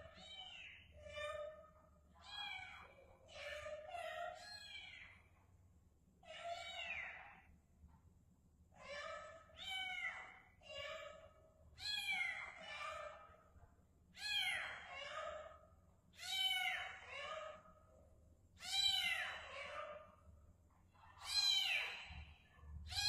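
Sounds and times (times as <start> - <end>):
kitten meowing: 21.2 - 22.0.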